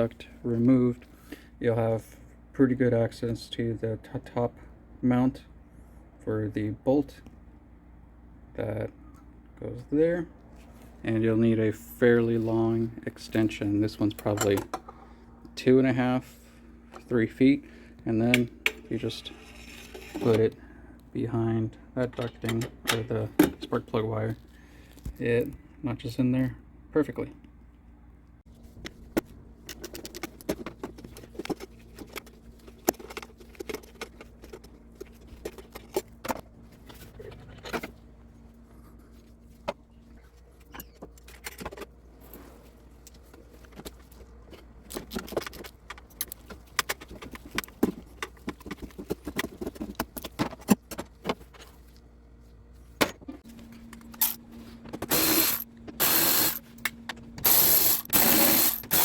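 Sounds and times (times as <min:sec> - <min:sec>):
ratchet wrench clicking: 0:54.2 - 0:54.4, 0:55.1 - 0:56.6, 0:57.4 - 0:59.0.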